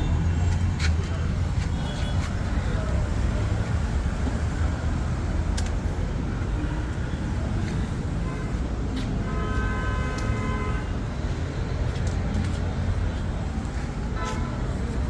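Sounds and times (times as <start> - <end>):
traffic rumble: 0.0 - 15.0
vehicle horn: 9.2 - 10.9.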